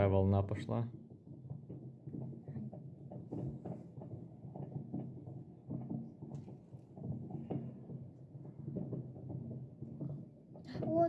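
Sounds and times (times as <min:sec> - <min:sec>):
distant fireworks bangs: 0:01.0 - 0:11.0.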